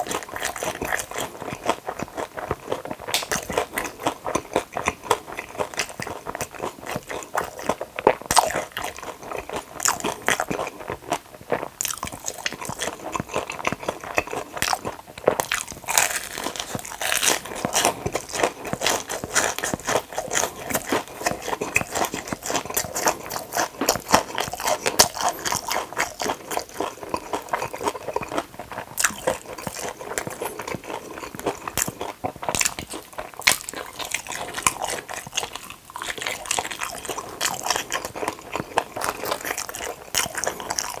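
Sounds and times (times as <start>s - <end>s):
crunching and chewing: 0.0s - 41.0s.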